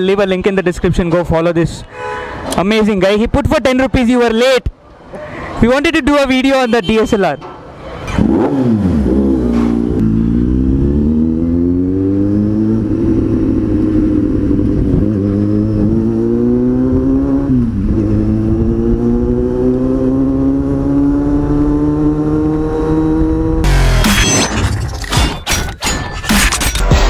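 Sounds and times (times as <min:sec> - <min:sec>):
motorcycle engine accelerating: 0:08.1 - 0:24.0.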